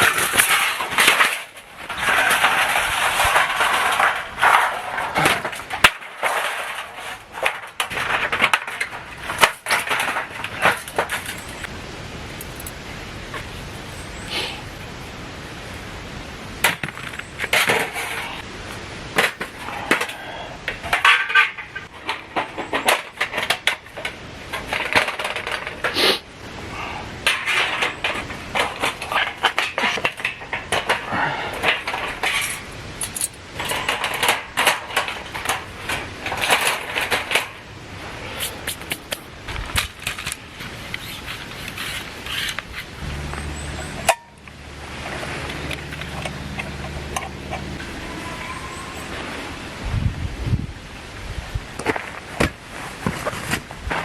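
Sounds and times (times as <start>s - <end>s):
camp gear clinking and clattering: 0.0s - 11.7s, 12.3s - 14.2s, 16.6s - 26.0s, 27.2s - 49.5s
steady low hum: 42.9s - 51.1s.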